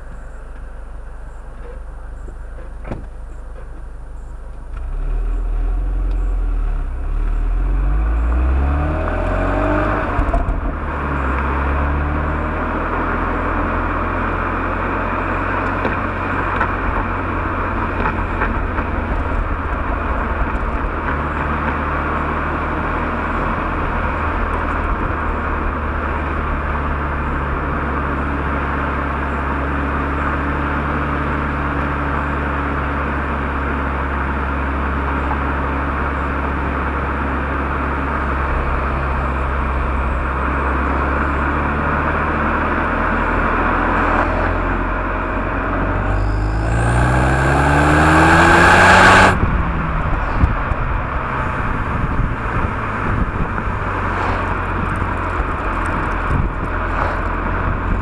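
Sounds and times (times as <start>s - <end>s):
car engine accelerating hard: 4.2s - 58.0s
loud rushing noise: 45.8s - 55.6s.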